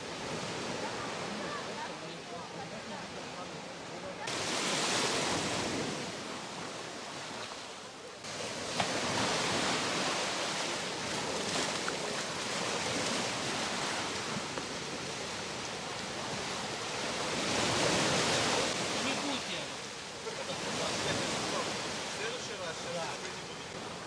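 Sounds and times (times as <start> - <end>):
waves breaking on sandy beach: 0.0 - 24.0.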